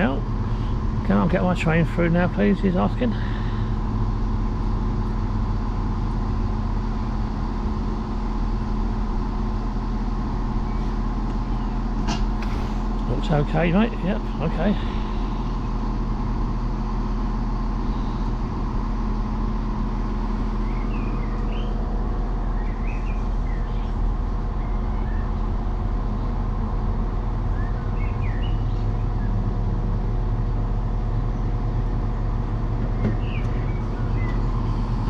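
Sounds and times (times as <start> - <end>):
diesel train idling: 0.0 - 35.0
birds chirping: 9.8 - 26.5, 27.2 - 29.6, 30.9 - 35.0.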